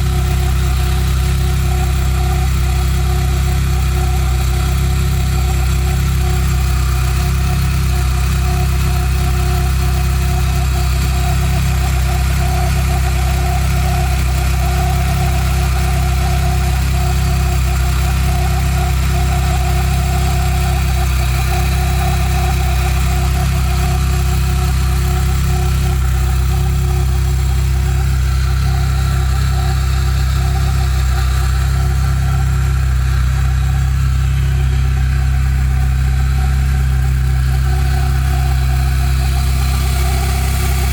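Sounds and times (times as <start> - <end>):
car engine idling: 0.0 - 40.9
steady whine: 20.4 - 40.9.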